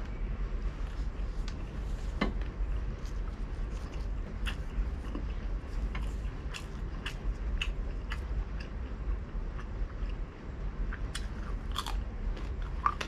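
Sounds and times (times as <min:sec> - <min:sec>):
steady low hum: 0:00.0 - 0:13.0
crunchy chewing: 0:02.7 - 0:13.0.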